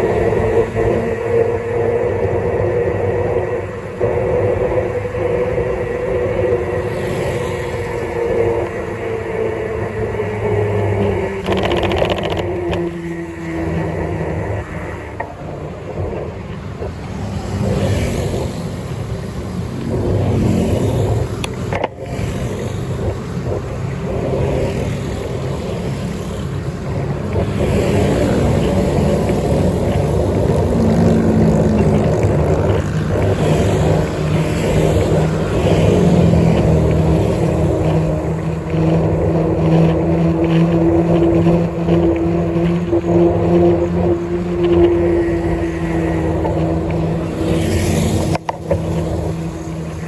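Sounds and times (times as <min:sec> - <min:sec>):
road noise: 0:00.0 - 0:50.0
vehicle engine running: 0:00.0 - 0:50.0.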